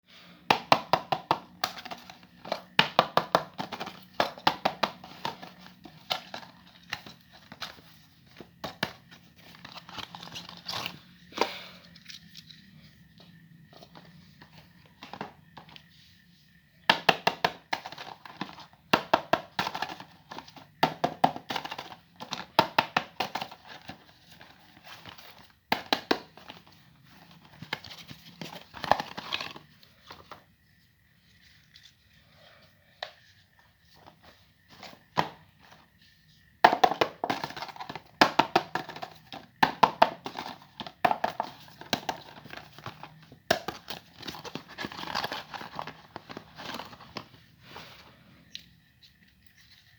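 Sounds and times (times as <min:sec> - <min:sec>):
paper and plastic crinkling: 0:41.2 - 0:48.0.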